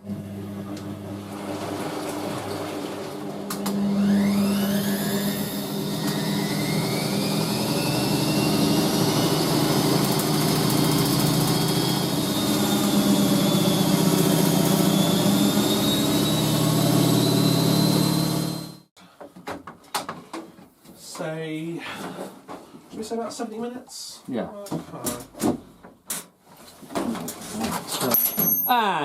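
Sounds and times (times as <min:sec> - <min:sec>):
electric motor humming and whining: 0:02.0 - 0:18.9.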